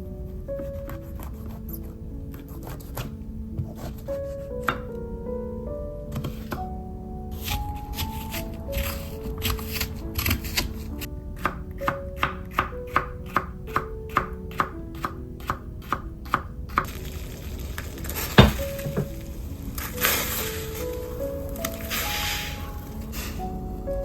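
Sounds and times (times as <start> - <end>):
soft background music: 0.0 - 24.0
knife chopping on cutting board: 18.4 - 19.1
heavy knock: 18.4 - 19.2.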